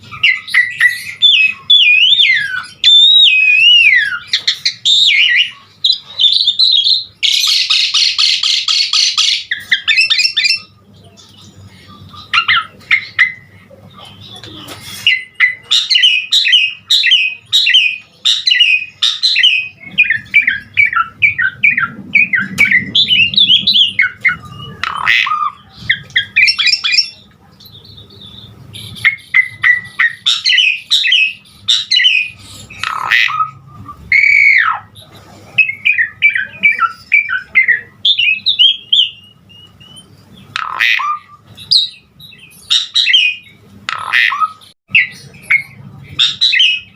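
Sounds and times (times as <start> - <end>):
starling chattering song: 0.0 - 46.9
harsh bird squawks: 0.1 - 10.7, 14.6 - 27.2, 28.9 - 35.0, 40.5 - 42.0, 42.6 - 46.9.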